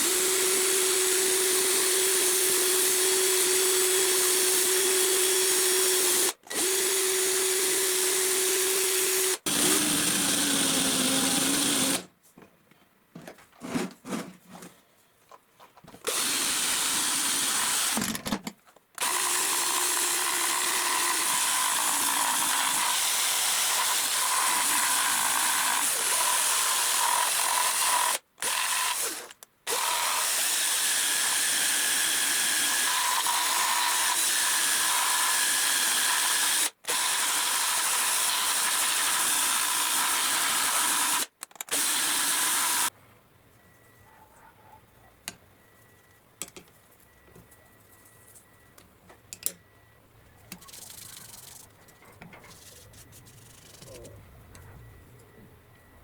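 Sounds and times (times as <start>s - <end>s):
power tool running: 0.0s - 12.1s, 16.0s - 18.2s, 19.0s - 42.9s.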